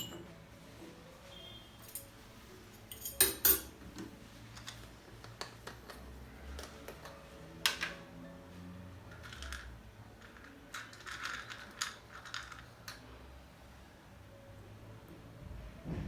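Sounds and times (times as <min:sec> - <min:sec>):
tableware clinking: 0:00.0 - 0:00.3, 0:02.8 - 0:04.0.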